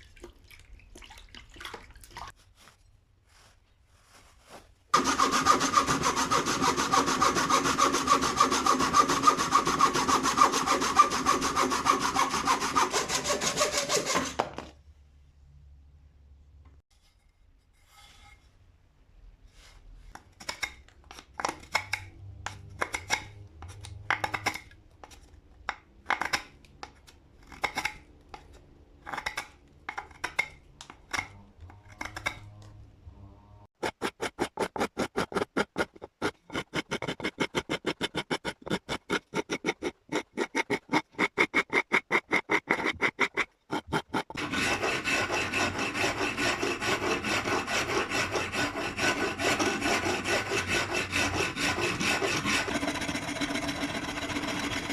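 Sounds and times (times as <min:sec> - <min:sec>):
hand rasp strokes: 0:03.3 - 0:14.4, 0:33.7 - 0:54.9.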